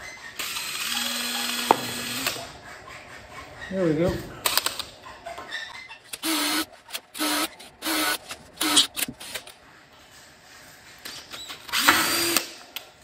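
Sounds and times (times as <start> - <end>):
power drill drilling steel: 0.4 - 2.3, 6.2 - 8.9, 11.7 - 12.6.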